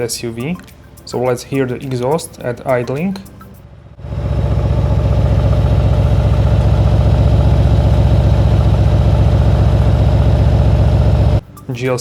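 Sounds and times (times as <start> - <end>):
car exhaust idling: 3.6 - 11.4.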